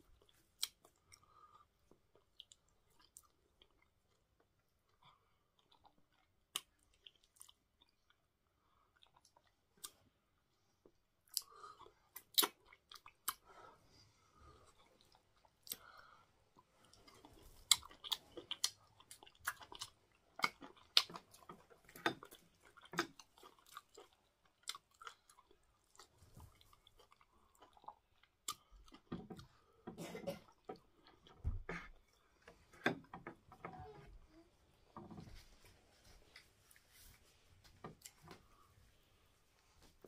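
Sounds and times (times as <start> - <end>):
person chewing with wet mouth smacks: 10.9 - 13.5, 16.6 - 29.6.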